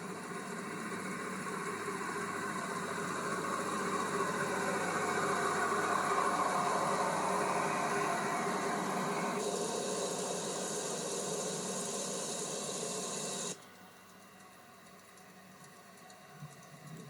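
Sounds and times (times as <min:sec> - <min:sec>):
train rumbling: 0:00.0 - 0:13.6.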